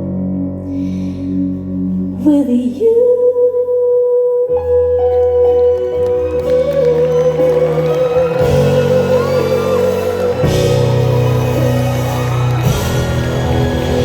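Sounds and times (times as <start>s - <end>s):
live band playing ballad: 4.5s - 14.0s.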